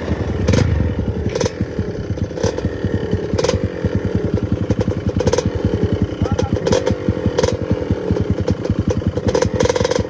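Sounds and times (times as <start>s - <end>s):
motorcycle engine at low revs: 0.0s - 10.0s
sharp clatter: 0.0s - 10.0s.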